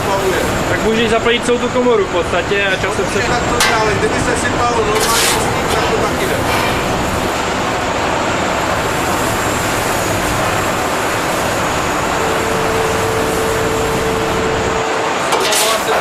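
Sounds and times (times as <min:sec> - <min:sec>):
furnace machinery roar: 0:00.0 - 0:16.0
steady mid-pitched tone: 0:11.0 - 0:15.2.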